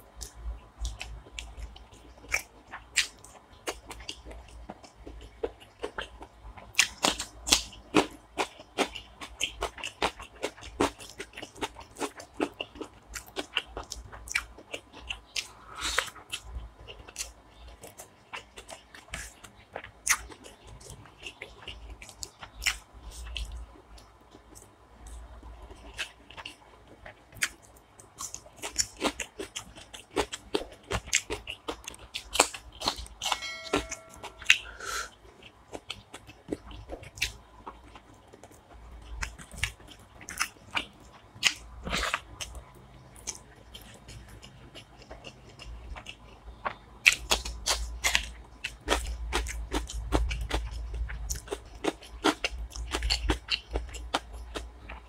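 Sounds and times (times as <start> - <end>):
chewing and crunching food: 0.0 - 55.0.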